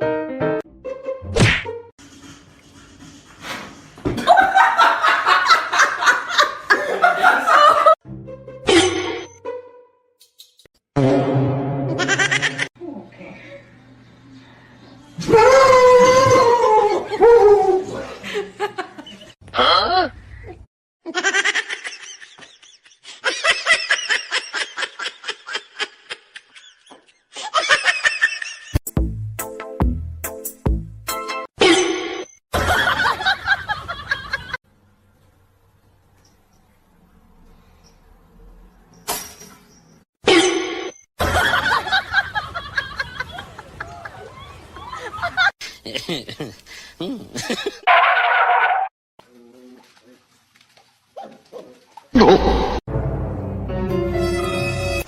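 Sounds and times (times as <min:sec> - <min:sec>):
background music: 0:00.0 - 0:01.9, 0:08.0 - 0:10.1, 0:28.9 - 0:31.5, 0:52.9 - 0:55.0
people laughing: 0:04.2 - 0:08.0, 0:17.9 - 0:19.4, 0:32.6 - 0:34.6, 0:41.2 - 0:47.9
music with thumping beat: 0:28.9 - 0:31.1.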